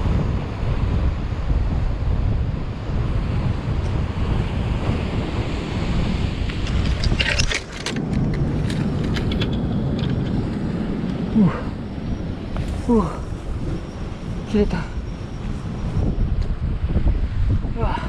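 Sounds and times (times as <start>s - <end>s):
wind buffeting microphone: 0.0s - 18.0s
clicks and rattles: 6.5s - 10.6s.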